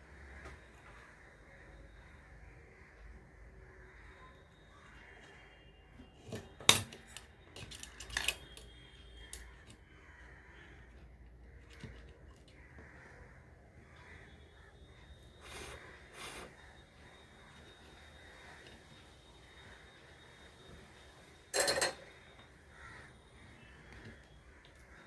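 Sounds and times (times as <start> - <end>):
small tools clicking and clattering: 6.3 - 8.7, 21.5 - 22.2.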